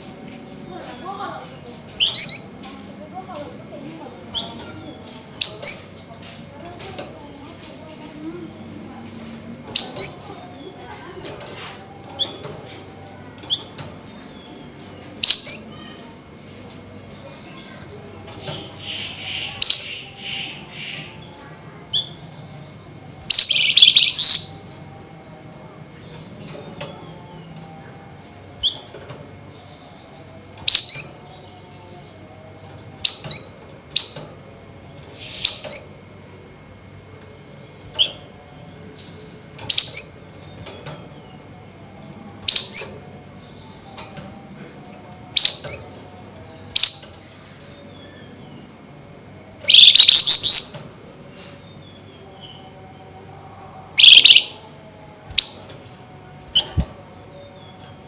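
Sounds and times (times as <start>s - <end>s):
bird chattering: 18.6s - 21.2s, 23.3s - 24.6s, 49.7s - 50.8s, 54.0s - 54.6s
songbird sharp high calls: 23.3s - 24.6s, 49.7s - 50.8s, 54.0s - 54.6s.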